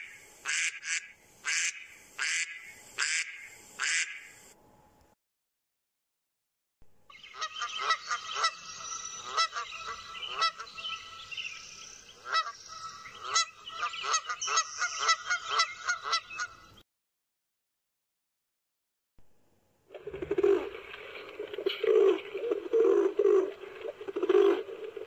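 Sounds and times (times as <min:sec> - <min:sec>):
geese honking: 0:07.3 - 0:11.3, 0:12.2 - 0:16.6.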